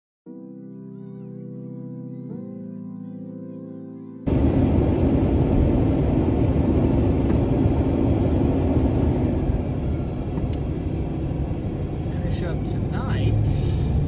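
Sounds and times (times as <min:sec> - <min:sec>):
car engine and road rumble: 0:04.3 - 0:14.0.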